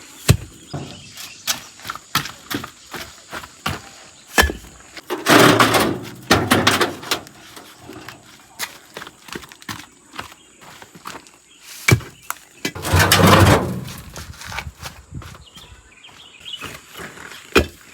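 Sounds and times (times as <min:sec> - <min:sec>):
concrete bricks knocking: 0:00.3 - 0:01.2, 0:12.7 - 0:14.3
block scraping on block: 0:12.7 - 0:14.2.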